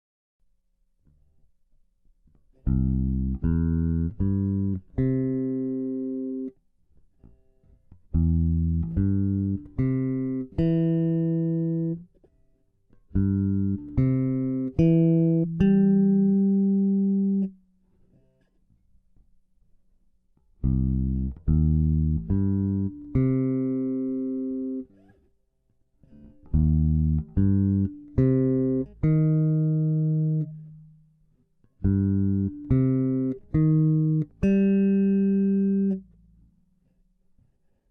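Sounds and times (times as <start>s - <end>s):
bass guitar plucked notes: 2.6s - 6.5s, 8.0s - 12.1s, 13.1s - 17.6s, 20.6s - 24.9s, 26.2s - 31.0s, 31.8s - 36.5s.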